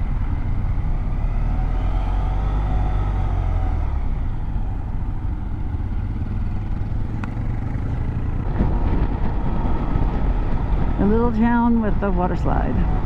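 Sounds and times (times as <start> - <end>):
motorcycle engine rumbling: 0.0 - 13.0
wind rushing: 6.8 - 13.0.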